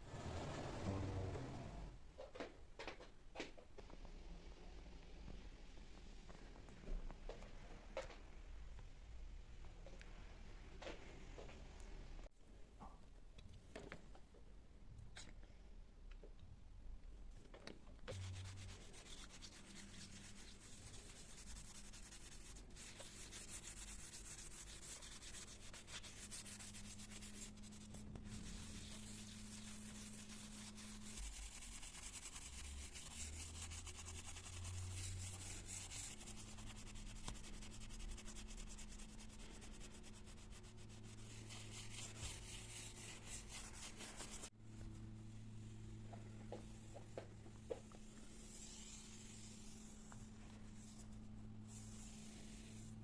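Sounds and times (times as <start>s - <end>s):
cloth scratching against surface: 0.0s - 2.0s, 18.1s - 44.5s, 48.3s - 53.0s
faint low hum: 0.0s - 53.0s.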